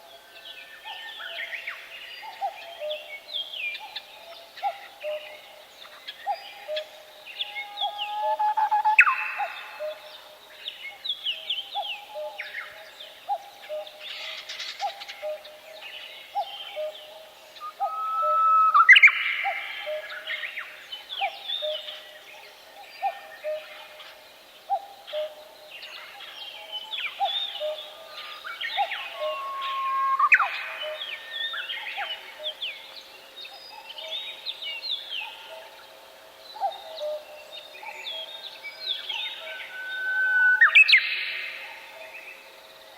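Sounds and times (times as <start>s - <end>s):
songbirds singing and chirping: 0.0s - 42.9s
birds chirping and whistling: 7.4s - 10.0s, 17.6s - 20.0s, 26.9s - 32.7s, 38.0s - 41.6s.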